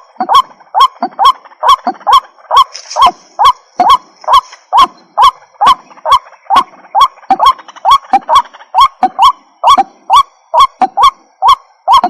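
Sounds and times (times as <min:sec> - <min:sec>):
bird honking calls: 0:00.0 - 0:12.0.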